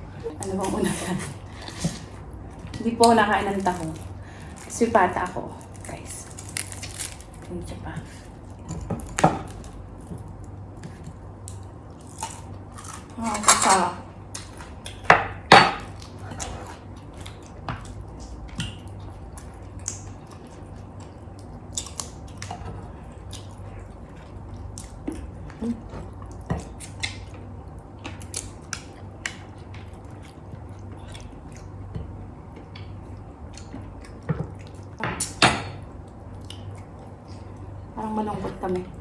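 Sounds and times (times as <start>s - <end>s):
faint steady hum: 0.0s - 39.0s
chewing and mouth smacks: 15.9s - 35.0s, 36.0s - 37.7s.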